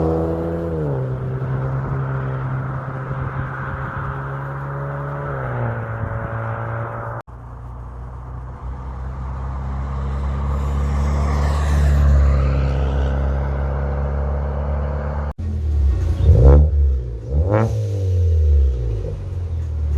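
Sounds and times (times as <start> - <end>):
car driving past: 8.3 - 19.7.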